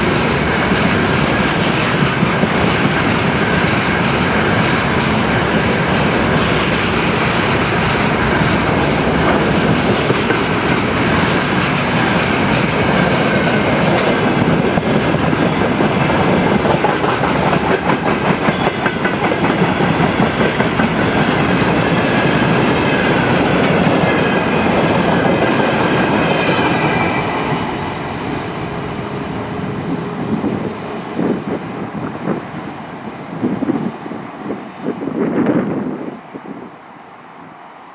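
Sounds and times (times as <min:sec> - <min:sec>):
train wheels clacking over rail joints: 0:00.0 - 0:29.7
high ringing of wheel on rail: 0:00.0 - 0:37.9.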